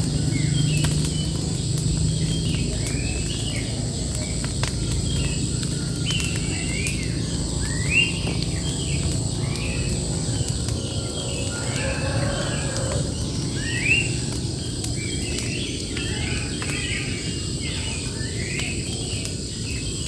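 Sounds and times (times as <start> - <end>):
birds singing: 0.0 - 20.0
low rumble: 7.2 - 14.9.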